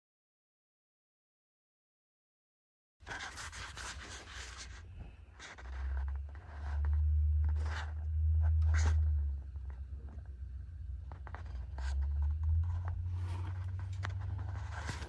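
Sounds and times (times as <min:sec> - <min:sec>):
rustling and scraping handling: 0:03.0 - 0:10.3, 0:11.1 - 0:15.0.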